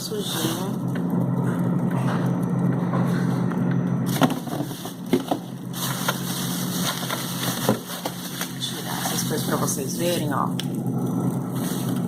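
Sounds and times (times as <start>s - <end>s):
steady low hum: 0.0s - 12.0s
items knocking in freezer: 4.1s - 9.3s.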